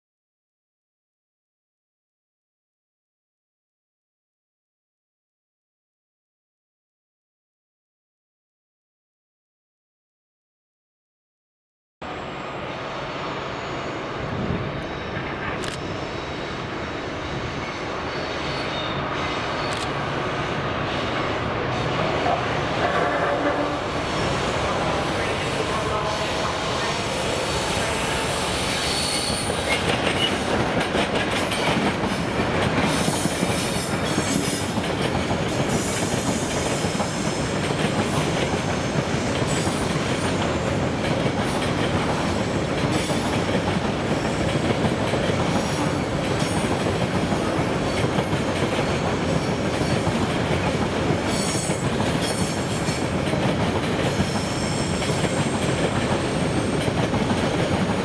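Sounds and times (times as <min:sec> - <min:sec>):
high-pitched wheel squeals: 0:26.8 - 0:30.4
train wheels clicking over rail joints: 0:29.3 - 0:58.0.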